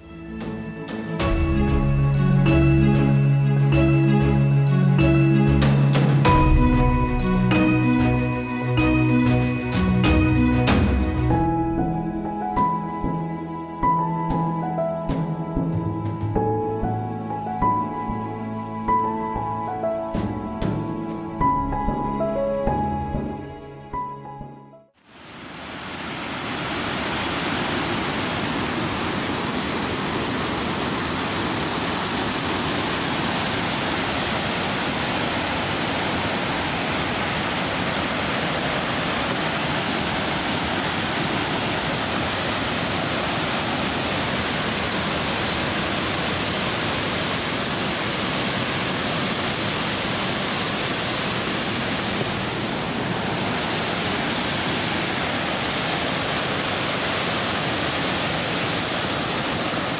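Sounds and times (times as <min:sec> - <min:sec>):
waterfall rushing: 0:01.0 - 0:11.9, 0:25.0 - 0:59.9.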